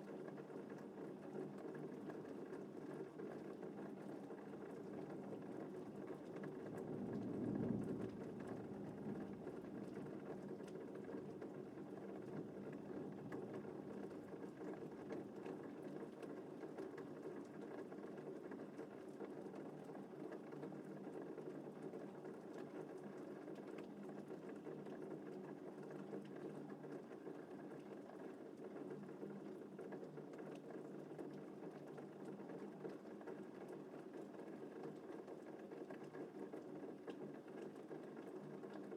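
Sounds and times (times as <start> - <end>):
steady rain falling: 0.0 - 38.9
low rumble of thunder: 6.3 - 12.4.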